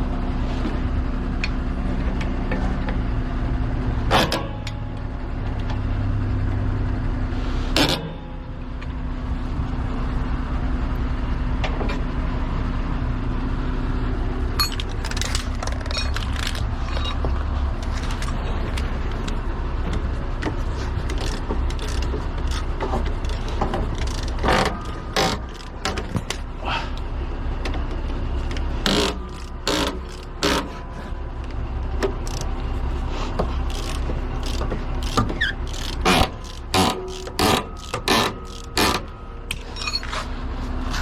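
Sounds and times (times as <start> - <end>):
vehicle engine running: 0.0 - 41.0.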